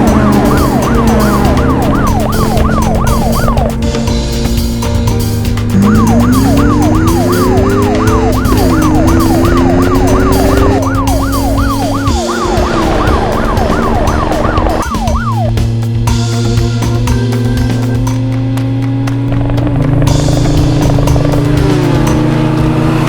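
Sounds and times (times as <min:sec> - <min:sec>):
cartoon siren sweeps: 0:00.0 - 0:03.8, 0:05.8 - 0:15.6
background music: 0:00.0 - 0:23.0.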